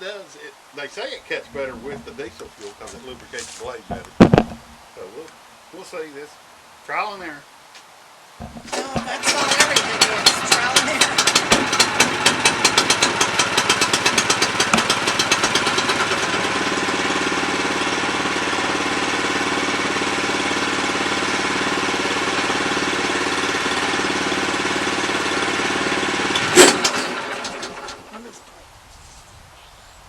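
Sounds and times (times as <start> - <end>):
small engine running: 1.6 - 3.4, 8.4 - 28.5.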